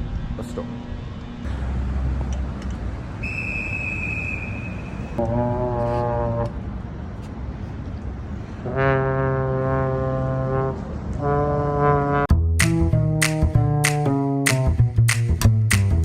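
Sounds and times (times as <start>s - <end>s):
low horn blasts: 3.2s - 6.8s, 8.6s - 12.3s.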